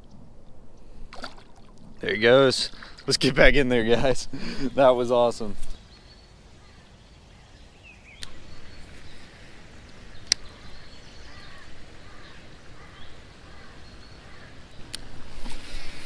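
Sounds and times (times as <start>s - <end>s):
bird calls: 3.7s - 16.0s.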